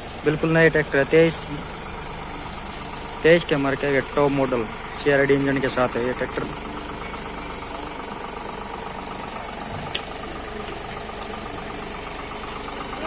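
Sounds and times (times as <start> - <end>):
diesel engine idling: 0.0 - 13.0
sharp click: 9.8 - 11.3.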